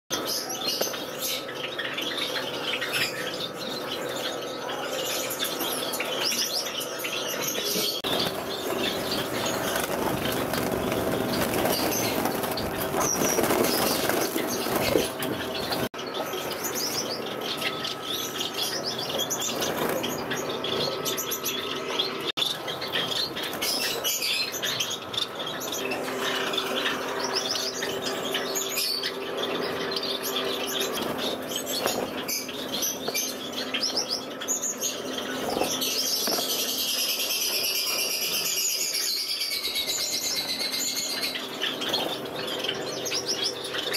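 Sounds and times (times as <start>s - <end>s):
finches chirping: 0.1s - 43.9s
wings fluttering: 7.6s - 17.7s, 18.6s - 21.8s, 22.7s - 38.6s.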